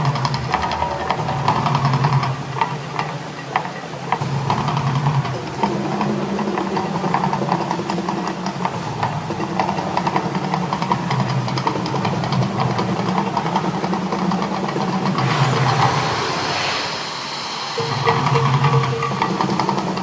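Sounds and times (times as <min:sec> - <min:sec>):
hissing rush: 0:14.4 - 0:20.0
low drone: 0:15.0 - 0:20.0.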